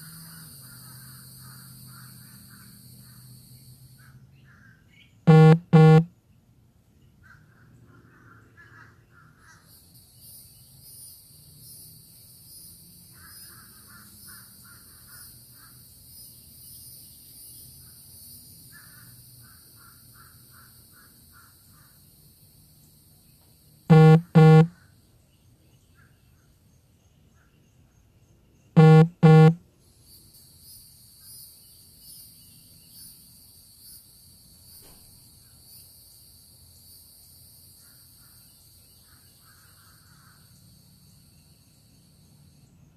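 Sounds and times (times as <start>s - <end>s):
high insect buzz: 23.9s - 24.7s.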